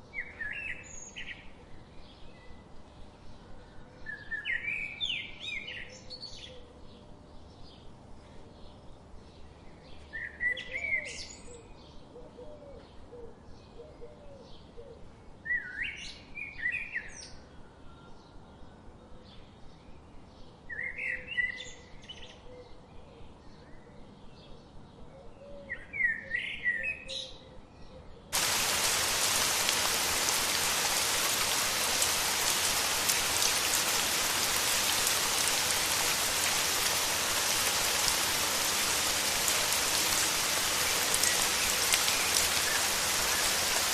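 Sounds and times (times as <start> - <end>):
steady rain: 28.3 - 43.9
faint chirping: 28.4 - 43.9.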